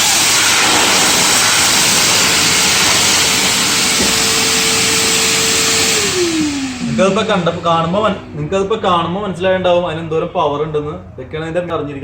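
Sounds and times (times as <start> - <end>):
vacuum cleaner blowing air: 0.0 - 9.7
vacuum motor hum: 0.0 - 10.1.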